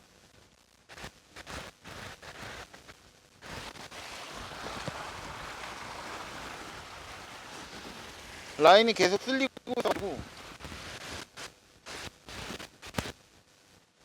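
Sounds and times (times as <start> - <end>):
sea surf: 4.0 - 10.2.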